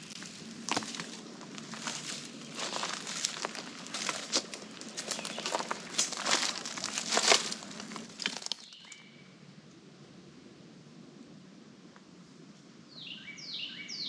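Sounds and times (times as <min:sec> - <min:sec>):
footsteps in dry leaves: 0:00.0 - 0:08.9.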